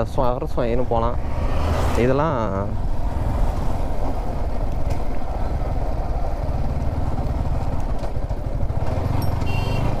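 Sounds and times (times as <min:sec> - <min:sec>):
motorcycle engine running: 0:06.3 - 0:10.0.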